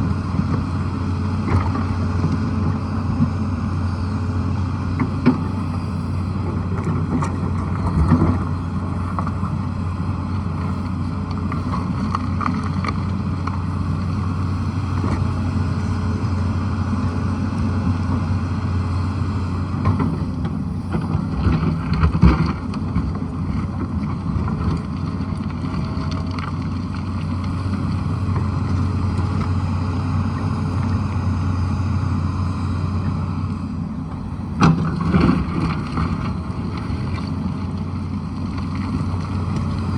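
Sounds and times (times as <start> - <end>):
excavator diesel engine running: 0.0 - 39.9
excavator knocks digging: 19.8 - 24.8, 34.6 - 37.2.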